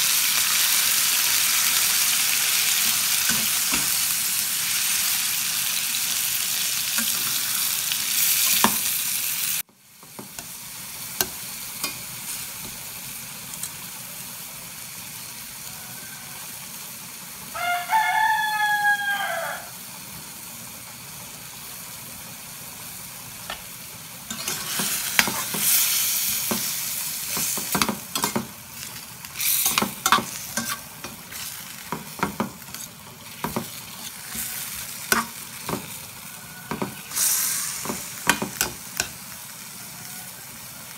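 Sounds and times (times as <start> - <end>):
meat sizzling in a frying pan: 0.0 - 40.9
rooster crowing: 15.5 - 16.8, 17.5 - 19.8, 34.0 - 37.1, 39.7 - 40.9
metal spatula scraping a pan: 24.3 - 39.2.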